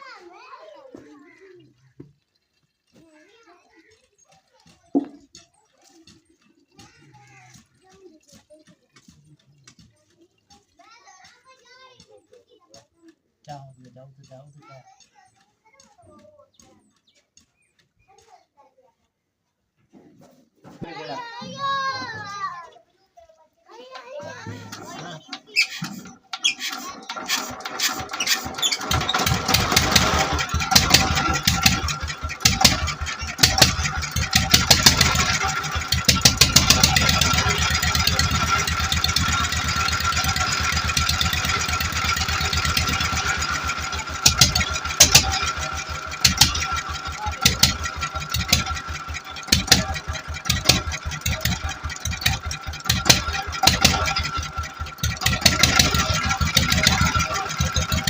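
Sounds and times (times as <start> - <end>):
diesel engine running: 24.3 - 58.0.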